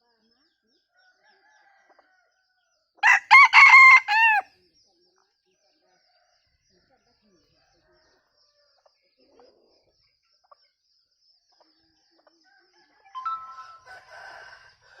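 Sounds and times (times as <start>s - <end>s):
rooster crowing: 3.0s - 4.5s, 13.6s - 15.0s
high-pitched trill: 13.2s - 14.0s.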